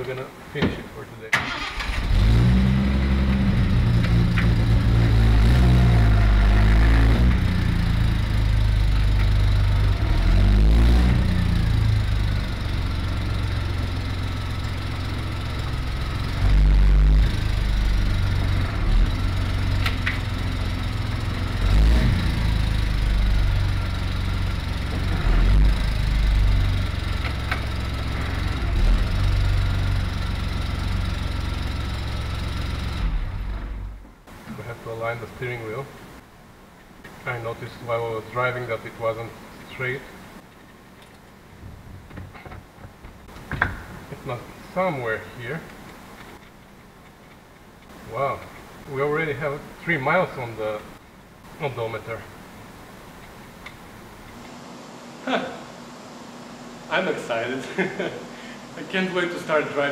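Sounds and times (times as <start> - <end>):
engine throttle blips: 1.4 - 34.8
car engine running: 1.7 - 35.1.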